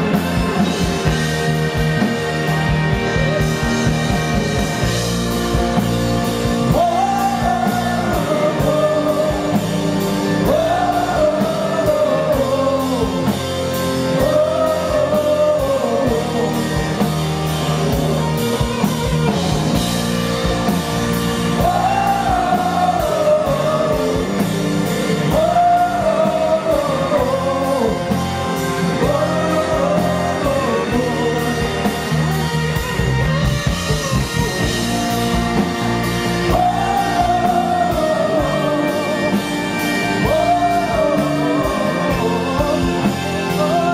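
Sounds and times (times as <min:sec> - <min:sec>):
drums with a steady beat: 0:00.0 - 0:43.9
electric guitar: 0:00.0 - 0:43.9
person singing: 0:05.8 - 0:19.4, 0:21.4 - 0:33.3, 0:35.6 - 0:43.9.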